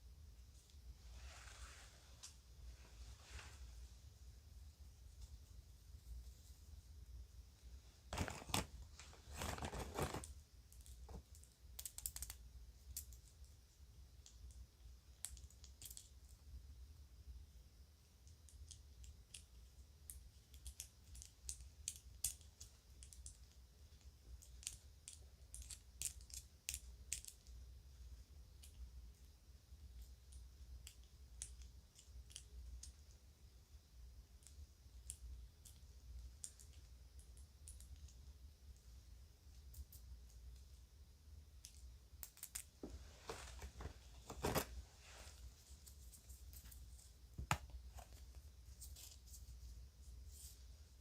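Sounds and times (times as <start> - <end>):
faint low hum: 0.0 - 51.0
bag rustling: 8.1 - 10.2.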